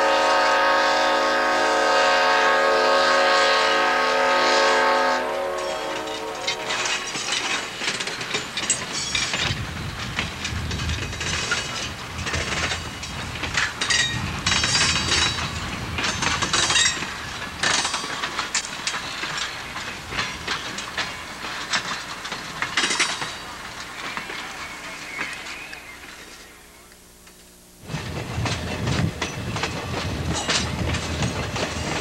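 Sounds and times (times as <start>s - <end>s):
steel wheels clattering over rail joints: 5.4s - 26.6s, 27.8s - 32.0s.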